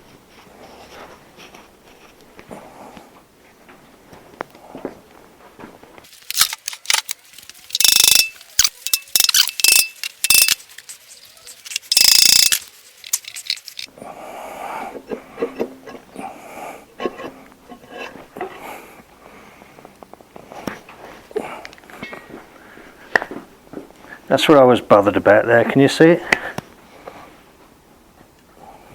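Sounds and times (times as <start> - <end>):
shuffling and handling noises: 0.0 - 13.9, 17.0 - 24.6
metal tools clanking: 6.2 - 13.9.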